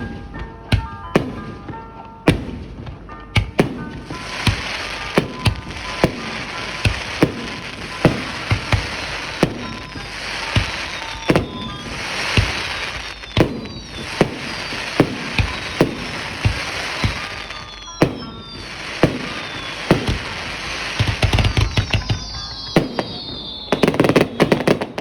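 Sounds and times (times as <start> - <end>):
fireworks bangs echoing: 0.0 - 25.0
crackling hiss of fireworks: 2.3 - 25.0.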